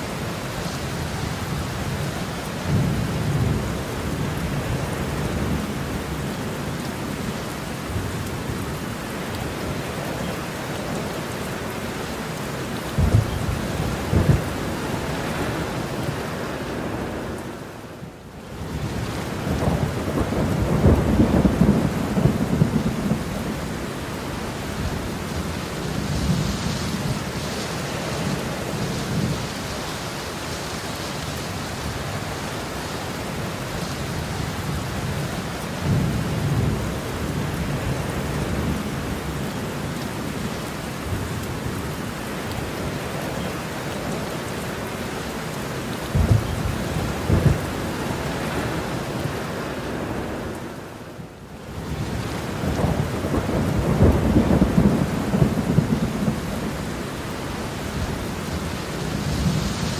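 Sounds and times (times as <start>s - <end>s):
heavy rain: 0.0s - 59.9s
sharp thunder claps: 13.0s - 14.6s, 46.1s - 47.7s
thunder rumbling: 13.0s - 17.5s, 18.7s - 27.4s, 46.0s - 49.3s, 51.8s - 57.1s.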